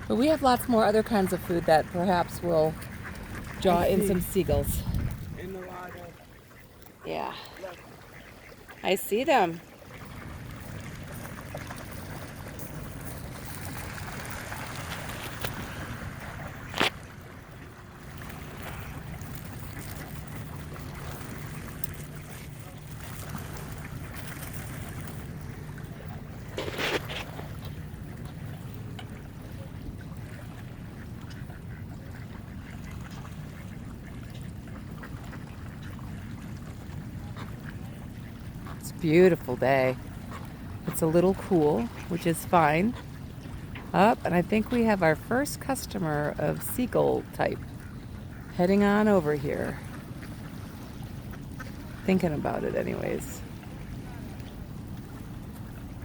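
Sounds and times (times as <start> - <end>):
waterbird calls: 0.0 - 56.0
wind: 0.0 - 56.0
wind rumble on microphone: 1.1 - 5.9.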